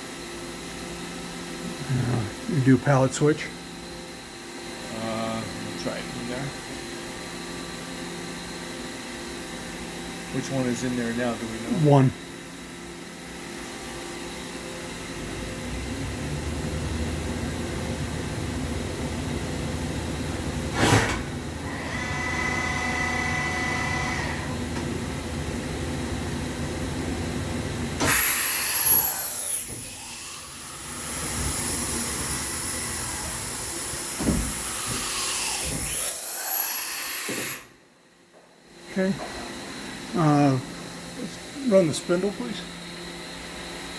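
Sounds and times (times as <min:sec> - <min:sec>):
machine mechanical hum: 0:00.0 - 0:43.9
multi-tone whine: 0:14.3 - 0:28.2.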